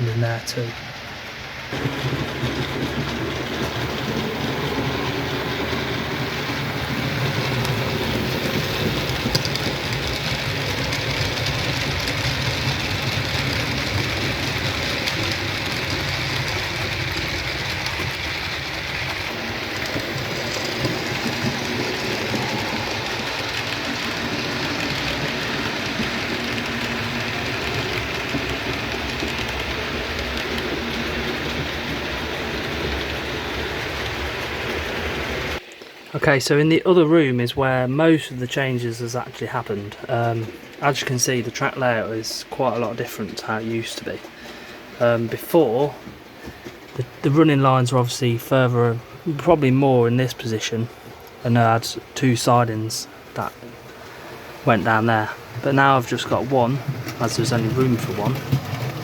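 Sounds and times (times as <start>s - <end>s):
wheels rolling over rails: 0.0s - 36.1s, 38.0s - 59.0s
model train motors whirring: 0.6s - 36.1s.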